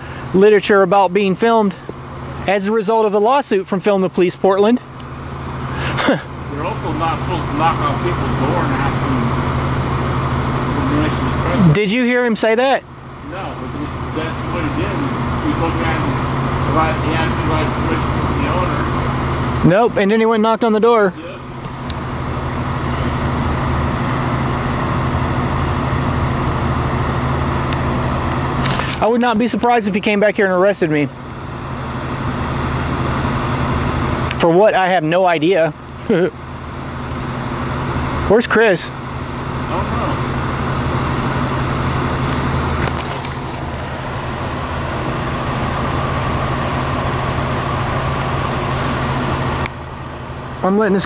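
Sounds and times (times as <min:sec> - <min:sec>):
street traffic noise: 0:00.0 - 0:51.0
vehicle engine running: 0:00.0 - 0:51.0.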